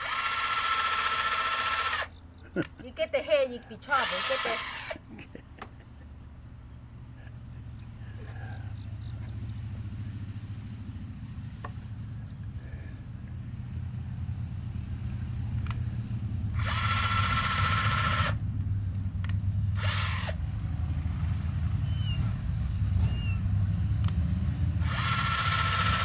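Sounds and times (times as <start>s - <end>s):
cordless drill driving screws into wood: 0.0s - 2.8s, 3.9s - 5.8s, 16.6s - 18.4s, 19.2s - 20.4s, 24.8s - 26.0s
steady low rumble: 4.8s - 16.8s.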